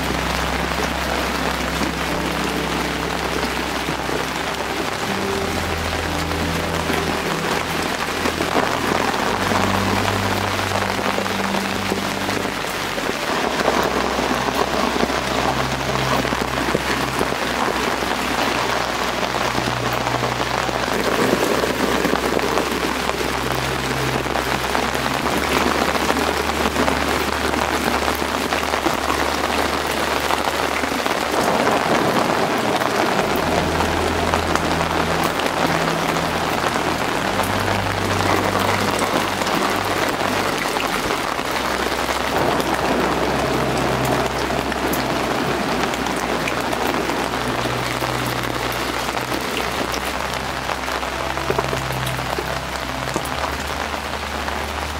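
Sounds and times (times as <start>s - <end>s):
heavy rain pattering: 0.0s - 54.9s
low sustained tones: 0.0s - 54.9s.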